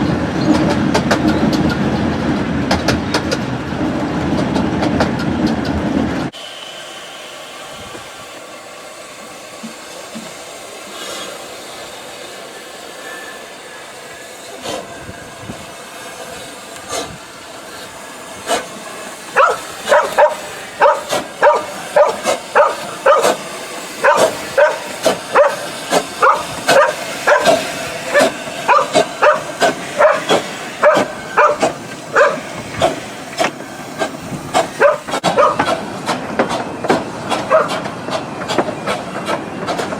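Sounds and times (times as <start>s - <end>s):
train running: 0.0s - 39.9s
dog barking: 19.4s - 23.4s, 24.0s - 25.6s, 26.2s - 32.4s, 34.8s - 35.7s, 37.5s - 37.8s.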